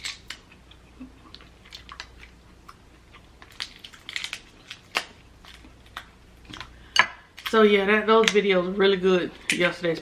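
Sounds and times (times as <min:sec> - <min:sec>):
chewing: 0:00.1 - 0:06.8
crab shell crackles and clicks: 0:03.4 - 0:06.7.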